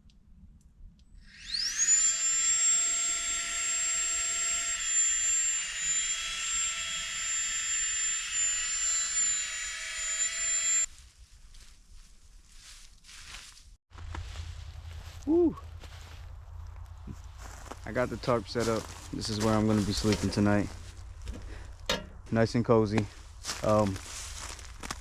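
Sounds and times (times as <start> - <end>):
small electric motor whine: 1.2 - 10.9
faint rustling steps: 10.9 - 25.0.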